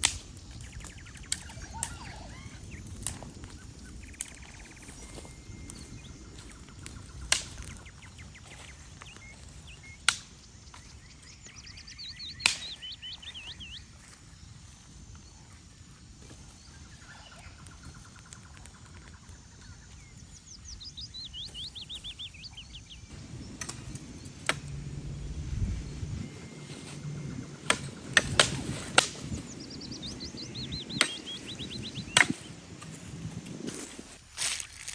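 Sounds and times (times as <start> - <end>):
sharp cracks: 0.0 - 10.9, 12.2 - 13.4, 23.1 - 34.9
songbird singing: 0.0 - 34.9
steady low rumble: 19.7 - 34.4.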